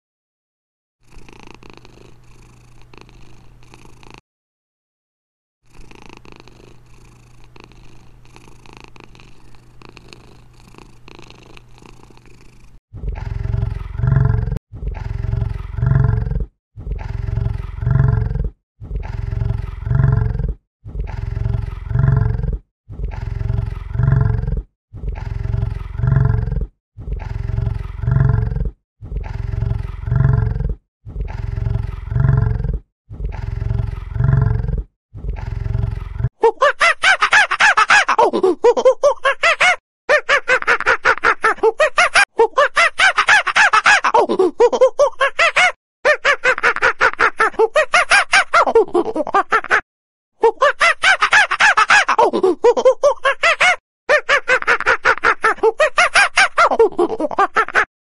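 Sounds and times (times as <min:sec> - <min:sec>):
cat purring: 0:01.1 - 0:04.2, 0:05.7 - 0:36.3
large animal deep calls: 0:12.9 - 0:36.3.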